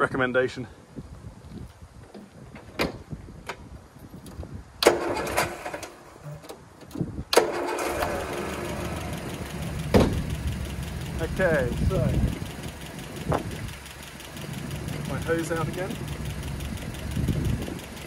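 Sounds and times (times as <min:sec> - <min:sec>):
starter motor cranking: 0:04.8 - 0:06.6, 0:07.3 - 0:18.0
car engine running: 0:07.8 - 0:18.0.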